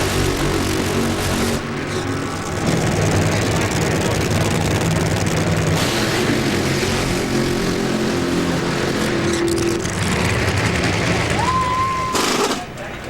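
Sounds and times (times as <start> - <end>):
loud racing car engine: 0.0 - 12.8.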